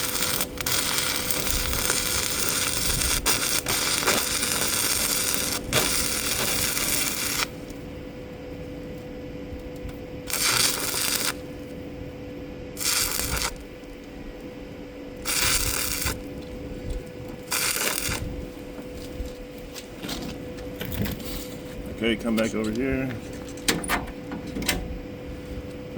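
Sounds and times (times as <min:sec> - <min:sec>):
welding arc crackling and hissing: 0:00.0 - 0:07.8, 0:10.2 - 0:11.6, 0:12.8 - 0:13.7, 0:15.2 - 0:19.4
machine hum: 0:00.0 - 0:25.9.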